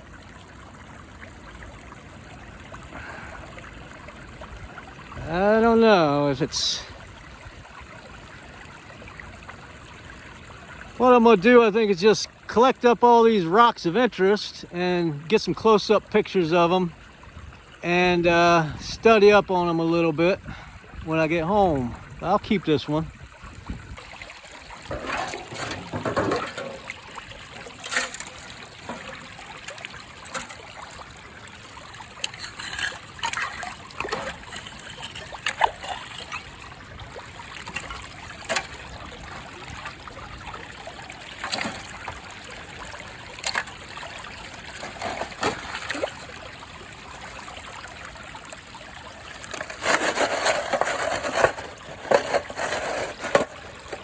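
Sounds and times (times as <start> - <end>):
creek water trickling: 0.0 - 54.0.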